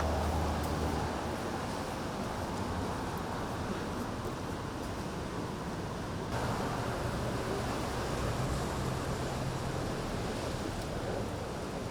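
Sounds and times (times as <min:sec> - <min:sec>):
wind: 0:00.0 - 0:11.9
low engine-like hum: 0:06.4 - 0:11.8.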